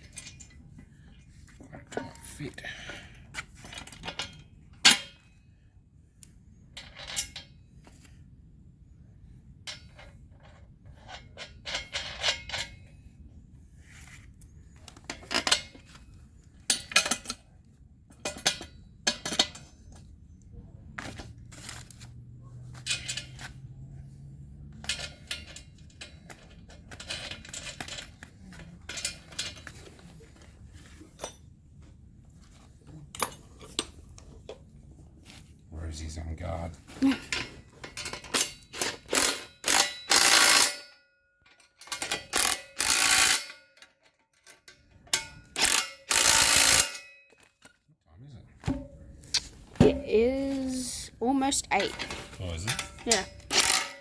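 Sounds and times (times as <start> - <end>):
metal nuts and bolts clinking: 0.0 - 0.8, 3.6 - 5.3, 6.2 - 7.6, 9.7 - 12.9, 16.6 - 17.5, 18.1 - 20.2, 22.7 - 23.6, 24.7 - 30.0, 37.2 - 47.6, 49.9 - 54.0.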